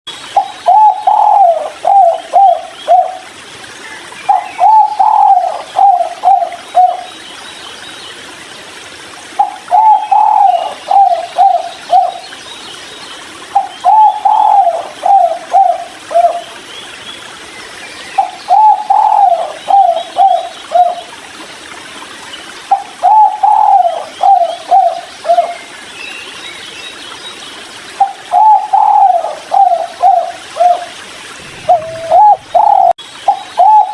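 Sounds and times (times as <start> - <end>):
dove cooing: 0.4 - 3.3, 4.3 - 7.1, 9.4 - 12.2, 13.5 - 16.4, 18.2 - 21.0, 22.7 - 25.6, 28.0 - 33.9
small birds chirping: 22.4 - 33.9.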